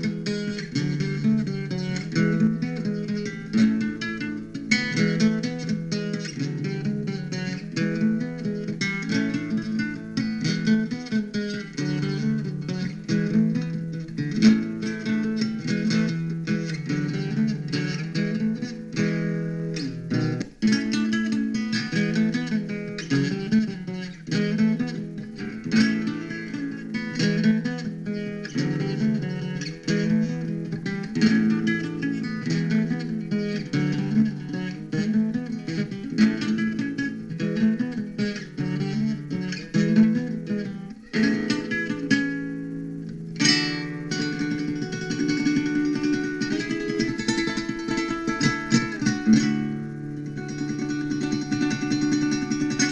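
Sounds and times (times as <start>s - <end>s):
acoustic guitar music: 0.0s - 52.9s.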